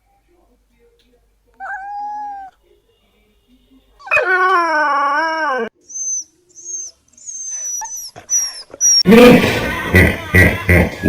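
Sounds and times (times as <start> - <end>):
dog howling: 4.0 - 5.7.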